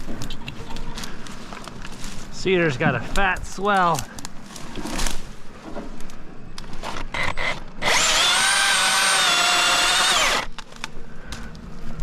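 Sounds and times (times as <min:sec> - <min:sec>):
chainsaw electric motor whining: 0:07.1 - 0:10.5.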